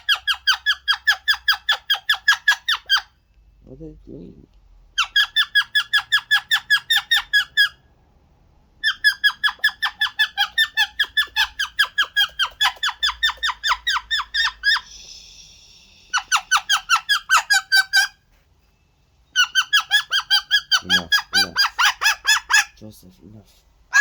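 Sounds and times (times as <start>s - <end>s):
parrot raspy squawk: 0.0s - 3.2s, 4.9s - 7.9s, 8.8s - 18.2s, 19.3s - 22.8s
parrot squeaky calls: 0.0s - 3.2s, 4.9s - 7.9s, 8.8s - 18.3s, 19.2s - 22.8s.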